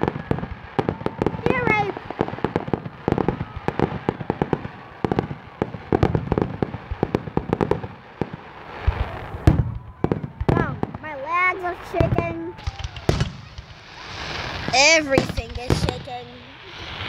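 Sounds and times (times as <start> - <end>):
heavy firework boom: 0.0 - 11.1, 11.8 - 17.0
fireworks bangs and crackles: 0.0 - 17.0.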